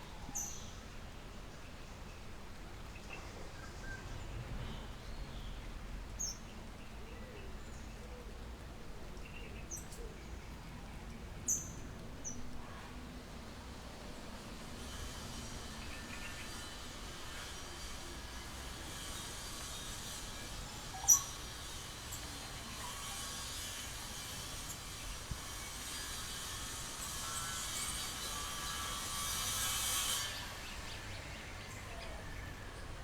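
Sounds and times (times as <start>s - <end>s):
steady hiss: 12.1s - 33.0s
high buzzing hiss: 13.3s - 33.0s.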